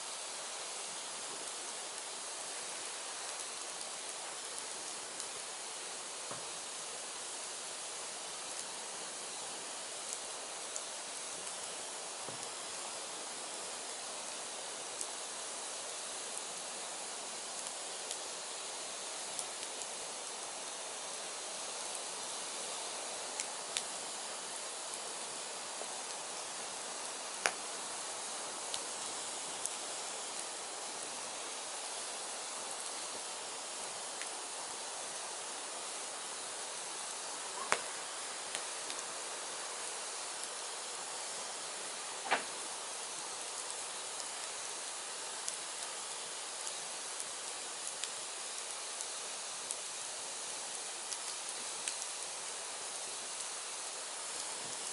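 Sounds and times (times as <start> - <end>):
firewood burning with hiss: 0.0 - 54.9
fire crackles and pops: 0.1 - 54.9
loud pop of firewood: 42.2 - 42.6.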